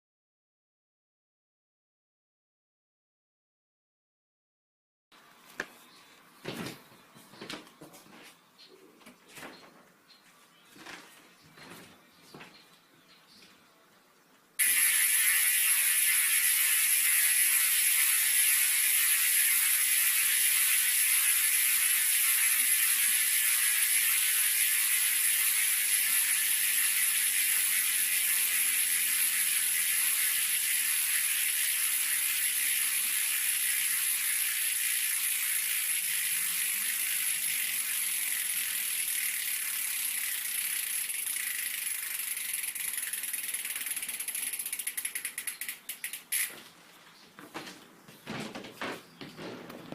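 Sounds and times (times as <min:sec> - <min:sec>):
bicycle hub freewheeling clicks: 0:14.6 - 0:46.6.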